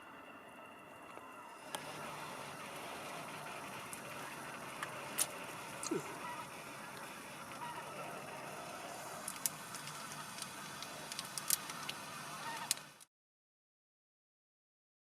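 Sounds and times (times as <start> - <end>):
geese honking: 1.1 - 13.0.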